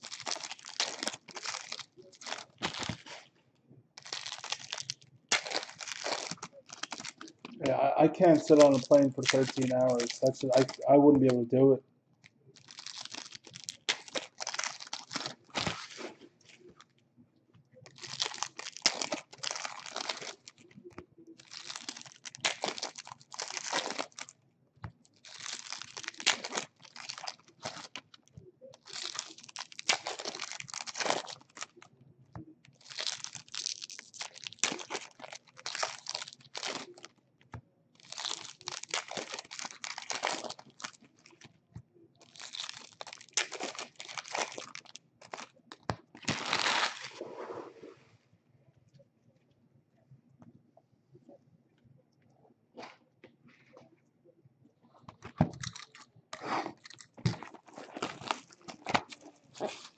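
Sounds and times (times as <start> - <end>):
plastic wrappers tearing and crumpling: 0.0 - 3.4, 4.0 - 11.6, 12.6 - 16.9, 17.8 - 24.4, 25.0 - 31.9, 32.6 - 37.2, 38.0 - 41.6, 42.2 - 47.2, 55.5 - 59.9.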